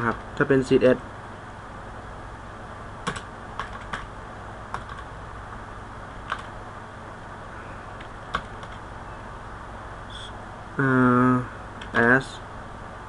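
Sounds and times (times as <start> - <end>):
faint low hum: 0.0 - 13.0
keyboard keystrokes: 3.0 - 4.1, 4.7 - 5.0, 6.3 - 6.5.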